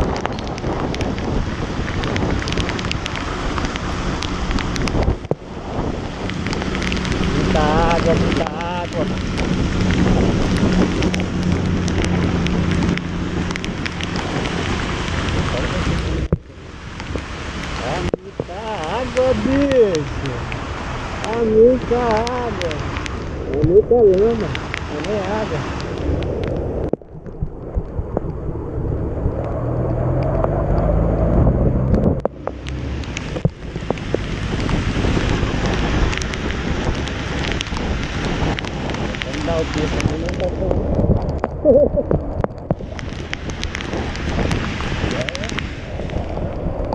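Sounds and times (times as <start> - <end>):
raindrops ticking on microphone: 0.0 - 46.9
wind noise on microphone: 0.0 - 46.9
sharp ticks: 21.2 - 27.4.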